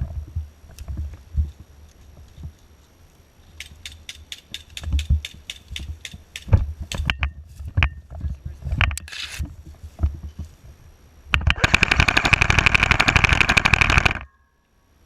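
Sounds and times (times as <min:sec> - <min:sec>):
airsoft rifle full-auto burst: 0:11.4 - 0:14.4.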